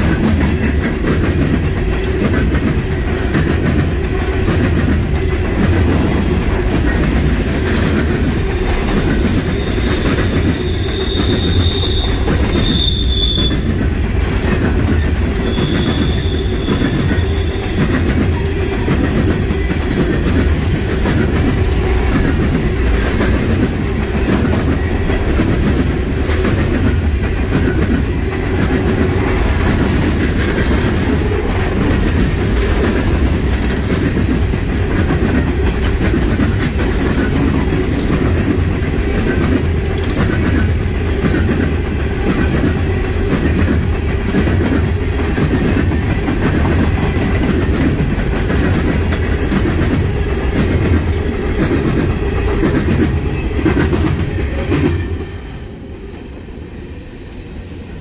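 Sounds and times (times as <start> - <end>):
freight train rumbling past: 0.0 - 58.0
train wheel squeal: 8.5 - 13.9, 14.5 - 20.2, 51.7 - 55.7.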